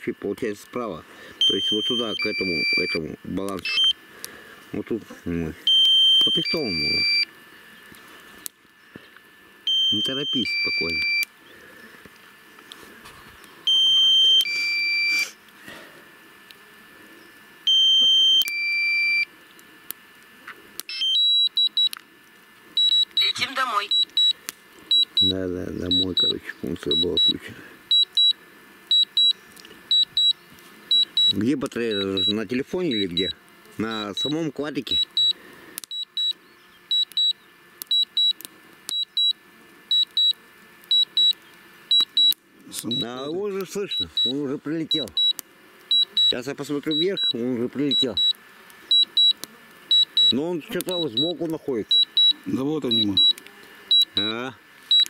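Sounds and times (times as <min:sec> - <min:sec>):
short beeps: 0:01.4 - 0:03.0, 0:03.6 - 0:04.0, 0:05.7 - 0:07.3, 0:09.7 - 0:11.3, 0:13.7 - 0:15.2, 0:17.7 - 0:19.3, 0:25.9 - 0:33.3, 0:42.9 - 0:44.4, 0:51.9 - 0:54.3
two-tone alarm beep: 0:01.4 - 0:03.0, 0:03.6 - 0:04.0, 0:05.7 - 0:07.3, 0:09.7 - 0:11.3, 0:13.7 - 0:15.2, 0:17.7 - 0:19.3, 0:20.9 - 0:21.9, 0:22.8 - 0:25.3, 0:25.9 - 0:33.3, 0:33.9 - 0:54.3.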